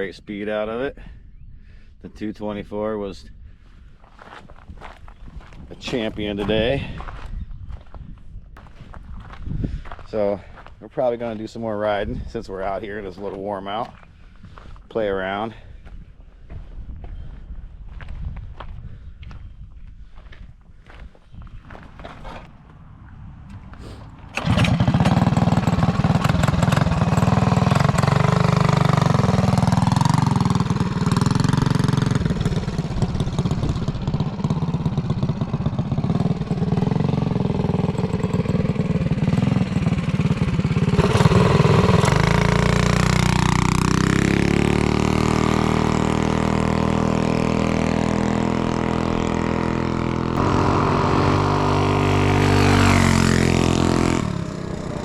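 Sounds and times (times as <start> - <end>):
mini bike engine running: 24.4 - 55.0.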